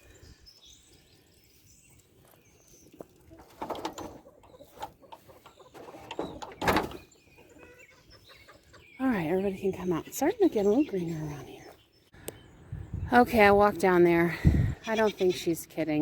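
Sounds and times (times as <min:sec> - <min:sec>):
small birds chirping: 0:00.0 - 0:16.0
chickens clucking: 0:02.9 - 0:11.8
gate rattling and knocking: 0:03.4 - 0:04.3, 0:05.8 - 0:07.1.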